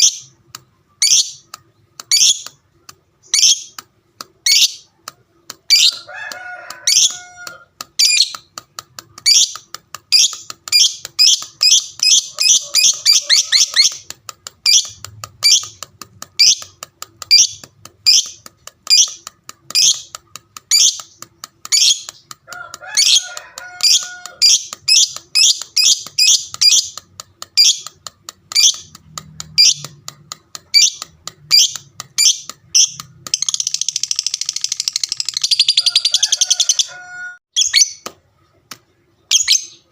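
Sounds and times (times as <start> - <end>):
lovebird high chirping chatter: 0.0 - 38.1, 39.3 - 39.9
lower squeaky bird calls: 6.8 - 8.4.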